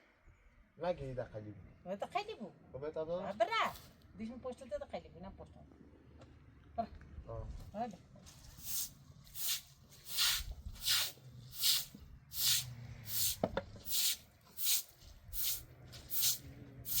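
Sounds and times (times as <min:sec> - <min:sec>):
mop swishing on cement floor: 0:08.3 - 0:17.0.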